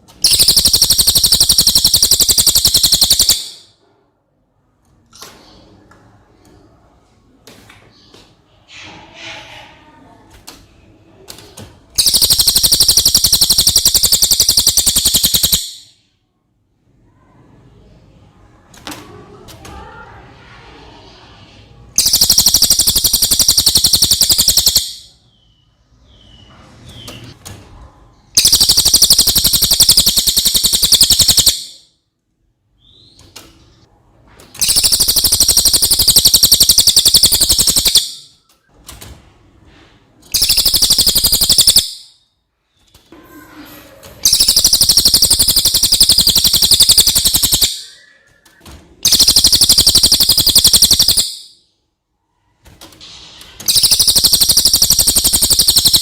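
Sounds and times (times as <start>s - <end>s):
parrot shrill chirping: 28.4s - 31.8s, 34.6s - 38.2s, 40.4s - 42.1s, 53.7s - 56.0s.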